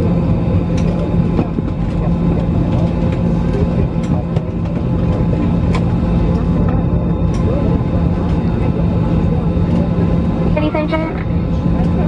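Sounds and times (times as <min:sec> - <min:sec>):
airliner cabin drone: 0:00.0 - 0:12.0.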